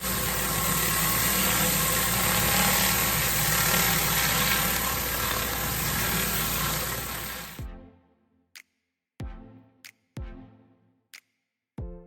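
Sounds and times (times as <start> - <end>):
pressure washer engine hum: 0.0 - 7.6
water spray hiss: 0.0 - 7.6.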